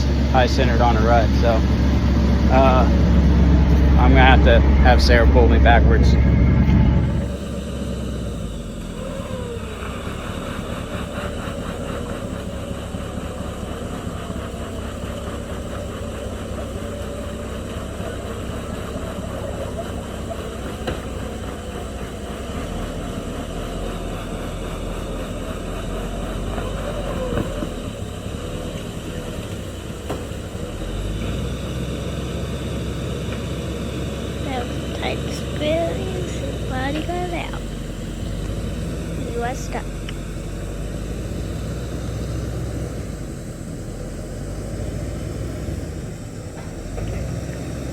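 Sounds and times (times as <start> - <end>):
tow truck engine running: 0.0 - 47.9.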